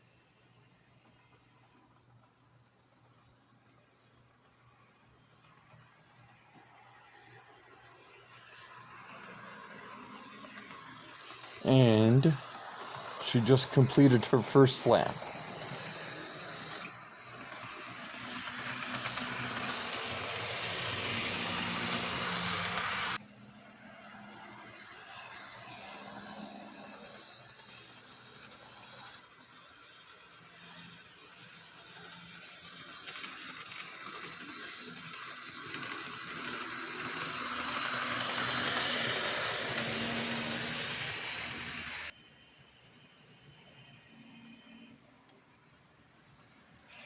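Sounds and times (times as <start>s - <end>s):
model train wheels rumbling on rail: 7.1s - 42.1s.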